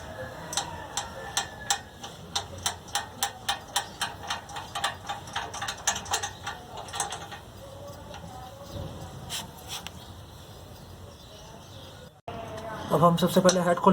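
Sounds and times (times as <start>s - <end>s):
ratchet wrench clicking: 0.0s - 10.0s.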